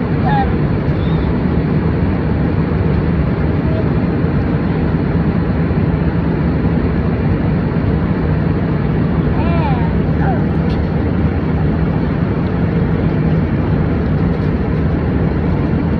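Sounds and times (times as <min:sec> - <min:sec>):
airliner cabin engine rumble: 0:00.0 - 0:15.9.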